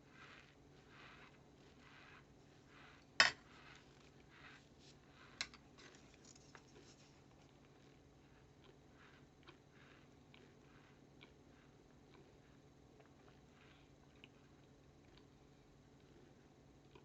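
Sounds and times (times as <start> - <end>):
chewing crunches: 5.9 - 17.0.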